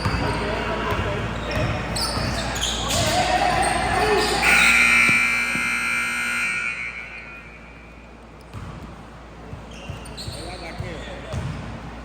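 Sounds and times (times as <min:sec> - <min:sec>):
scoreboard buzzer: 0:04.4 - 0:07.6.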